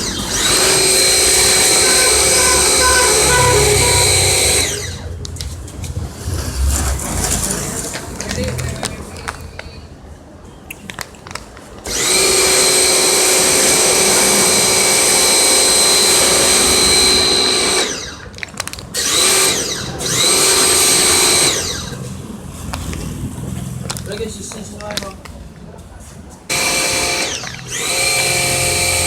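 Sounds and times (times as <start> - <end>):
electric motor whining: 0.0 - 5.1, 11.9 - 18.3, 19.0 - 22.0, 26.5 - 29.0.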